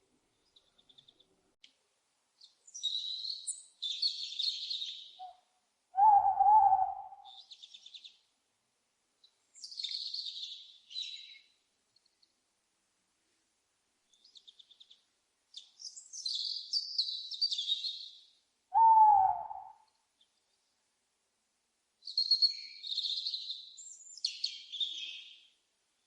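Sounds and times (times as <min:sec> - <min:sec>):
small birds chirping: 0:00.3 - 0:01.4, 0:02.4 - 0:08.3, 0:09.2 - 0:12.4, 0:14.0 - 0:20.8, 0:22.0 - 0:26.0
owl call: 0:06.0 - 0:07.4, 0:18.7 - 0:19.9.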